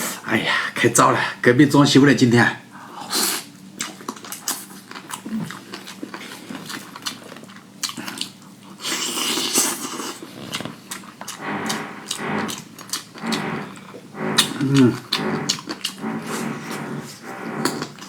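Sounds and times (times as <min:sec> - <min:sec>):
person chewing and slurping: 0:03.8 - 0:18.0.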